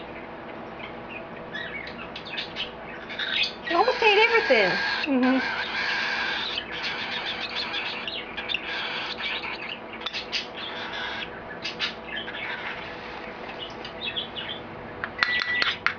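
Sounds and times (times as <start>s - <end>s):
cockatiel chirping: 1.5s - 13.0s.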